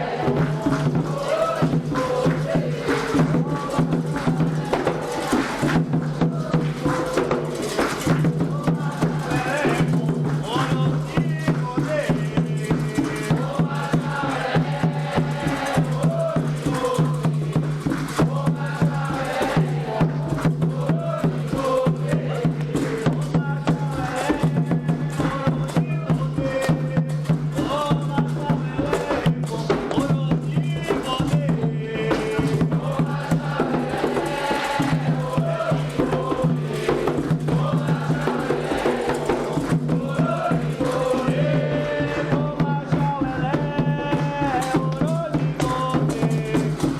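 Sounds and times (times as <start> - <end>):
hand percussion: 0.0 - 46.9
voices singing a chant: 0.0 - 46.9.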